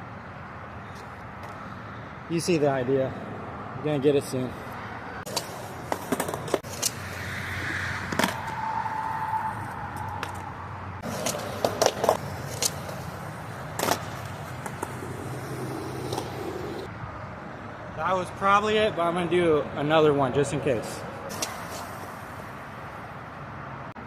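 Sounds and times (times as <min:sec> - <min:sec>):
skateboard rolling on pavement: 0:05.2 - 0:16.9, 0:21.3 - 0:22.7
skateboard trucks grinding: 0:05.2 - 0:16.9
skateboard wooden clacks: 0:11.1 - 0:13.0, 0:13.8 - 0:16.9.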